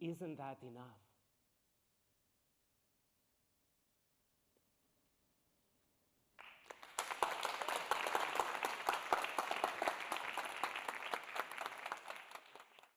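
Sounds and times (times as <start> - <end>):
audience applauding: 6.4 - 12.9.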